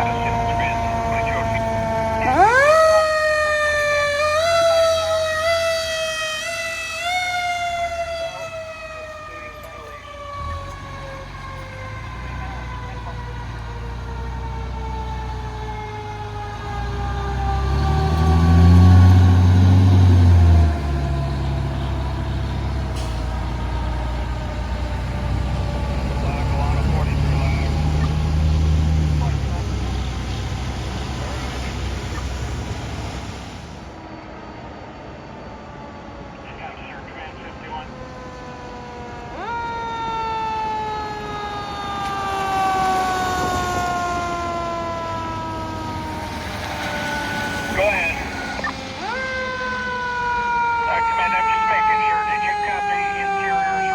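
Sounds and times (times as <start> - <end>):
siren winding down: 0.0 - 53.9
truck engine: 0.0 - 53.9
fire truck horn blast: 16.7 - 24.2.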